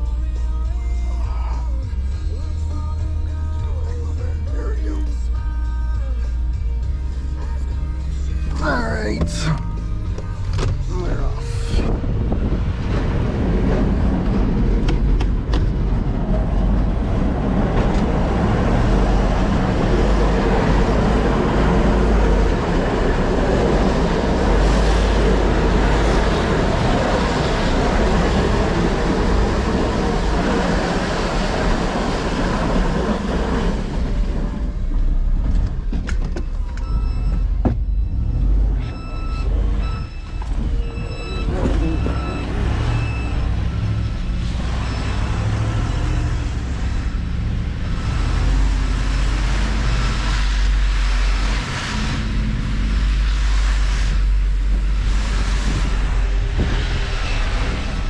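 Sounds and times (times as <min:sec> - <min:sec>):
heavy truck engine running: 0:00.0 - 0:58.0
reverse backup alarm beeping: 0:36.3 - 0:47.2.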